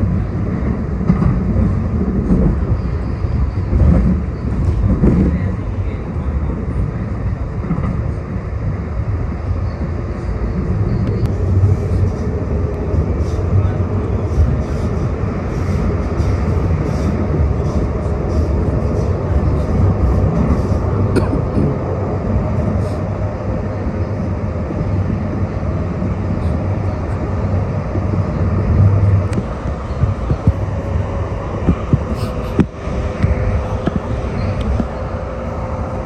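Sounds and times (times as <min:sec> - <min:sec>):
light rail train rumble: 0:00.0 - 0:36.0.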